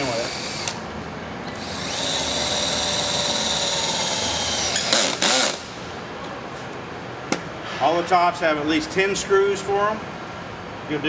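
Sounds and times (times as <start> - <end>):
drill rattle: 0.0 - 0.8, 1.6 - 5.7
power drill driving screw: 0.0 - 0.8, 1.6 - 5.7.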